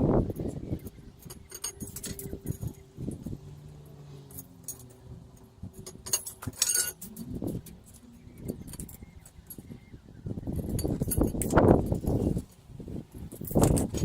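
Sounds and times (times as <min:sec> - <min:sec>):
metallic clinks of tools handled: 0:00.4 - 0:09.8, 0:10.5 - 0:12.2.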